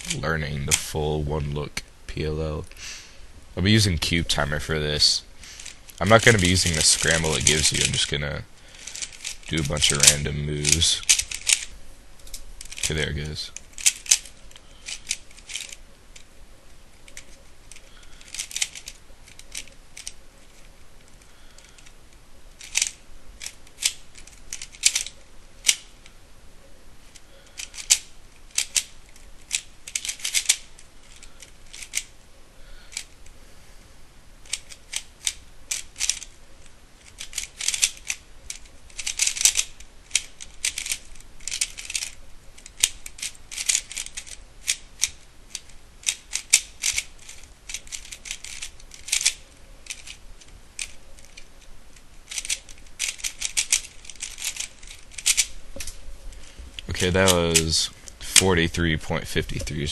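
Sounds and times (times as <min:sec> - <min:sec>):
plastic puzzle cube clicking: 0:05.5 - 0:08.1, 0:08.7 - 0:16.3, 0:17.0 - 0:26.1, 0:27.1 - 0:32.2, 0:32.9 - 0:33.3, 0:34.4 - 0:56.0.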